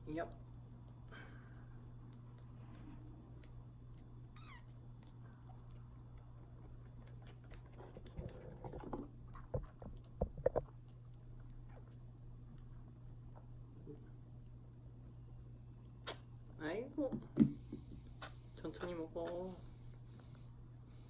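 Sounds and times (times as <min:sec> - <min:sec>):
kitten mewing: 0:04.3 - 0:04.8.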